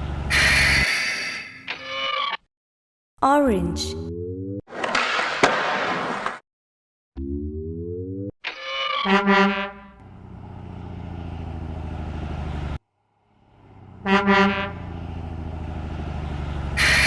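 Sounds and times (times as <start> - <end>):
truck engine running: 0.0 - 0.8, 9.7 - 17.0
truck horn honking: 9.0 - 10.2, 13.8 - 15.1, 16.7 - 17.0.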